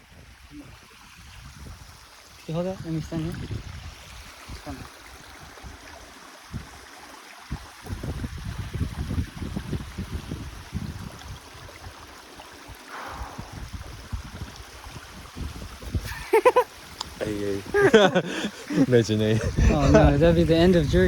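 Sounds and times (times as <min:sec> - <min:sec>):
wind buffeting microphone: 0:00.0 - 0:02.0, 0:02.8 - 0:05.8, 0:07.5 - 0:12.1, 0:12.7 - 0:21.0
waterfall rushing: 0:12.9 - 0:14.2, 0:15.4 - 0:20.7.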